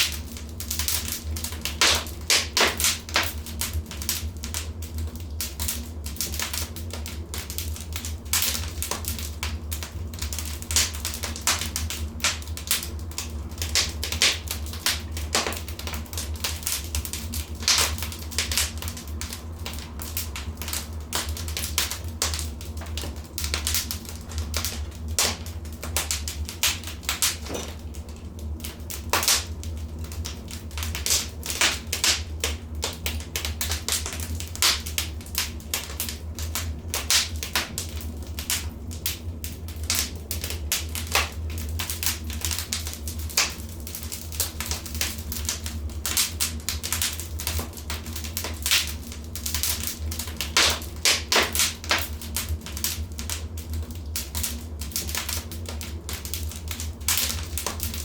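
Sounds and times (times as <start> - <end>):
low steady rumble: 0.0 - 58.0
wood fire popping and snapping: 0.0 - 58.0.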